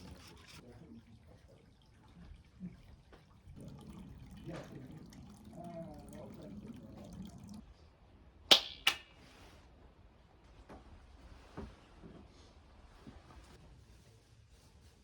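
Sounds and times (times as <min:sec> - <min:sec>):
murmuring voices: 0:03.6 - 0:07.6
sharp claps: 0:08.5 - 0:09.2.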